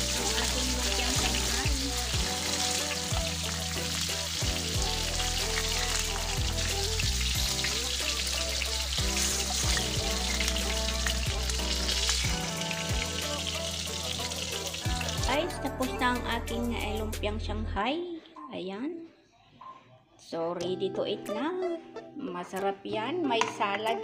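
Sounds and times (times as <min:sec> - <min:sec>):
spring rolls frying in oil: 0:00.0 - 0:15.4.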